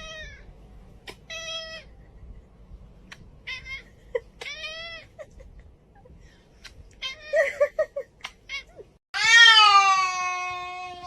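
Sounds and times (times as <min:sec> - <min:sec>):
cat meowing: 0:08.5 - 0:11.0.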